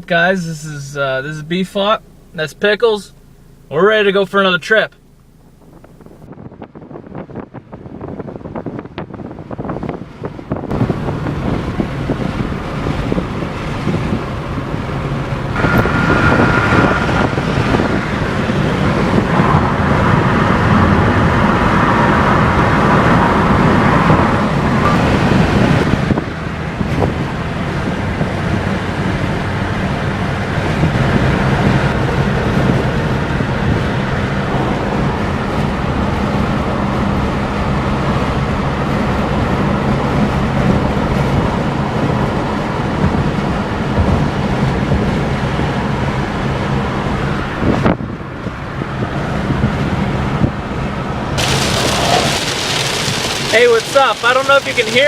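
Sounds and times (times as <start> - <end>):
car engine and tyre noise: 0.0 - 55.0
rain hiss on wet road: 51.4 - 55.0.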